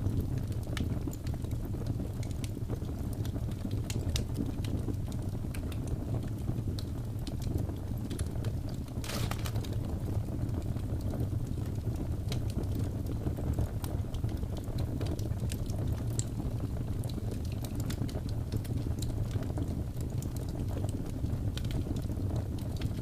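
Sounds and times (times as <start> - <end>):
low rumble of flames: 0.0 - 23.0
fire crackling and popping: 0.1 - 23.0.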